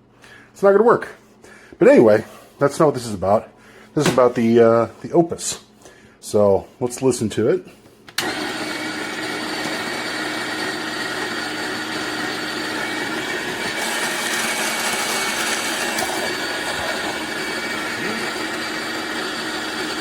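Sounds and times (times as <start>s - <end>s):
coffee grinder grinding beans: 8.2s - 20.0s.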